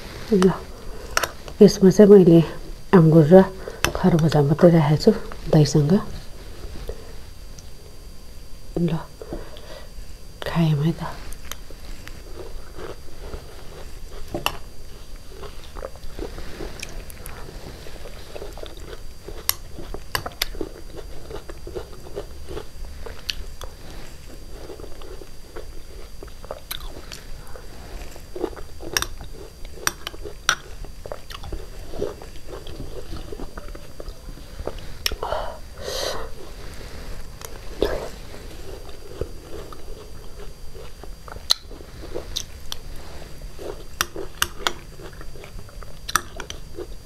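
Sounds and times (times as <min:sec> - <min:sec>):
wet chewing and smacking: 0:11.3 - 0:27.3, 0:28.3 - 0:35.2, 0:37.3 - 0:47.0.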